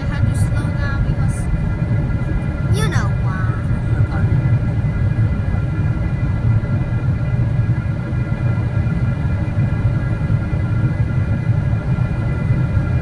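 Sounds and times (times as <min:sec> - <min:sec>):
aircraft cabin low rumble: 0:00.0 - 0:13.0
high jet engine whine: 0:00.0 - 0:13.0.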